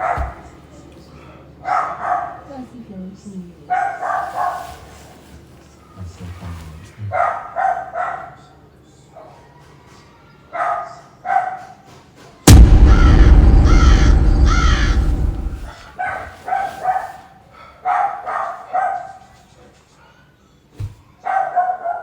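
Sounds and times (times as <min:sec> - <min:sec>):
loud pitched calls: 0:12.9 - 0:15.7.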